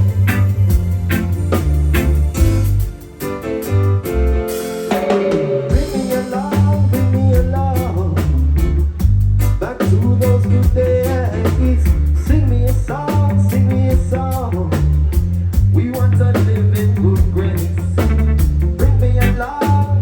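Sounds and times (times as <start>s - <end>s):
pitch-bending melody line: 0.0s - 7.2s
drum kit steady beat: 0.0s - 20.0s
live band playing: 0.0s - 20.0s.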